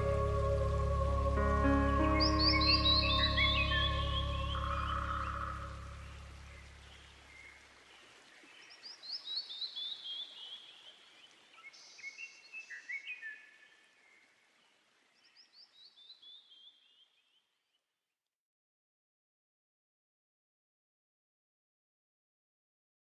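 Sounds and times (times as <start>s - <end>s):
music track: 0.0s - 6.4s
bird chirps: 2.0s - 7.0s.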